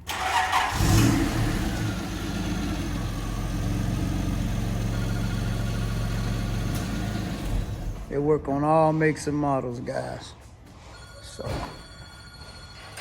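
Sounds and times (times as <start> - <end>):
car engine starting and idling: 0.0 - 8.1.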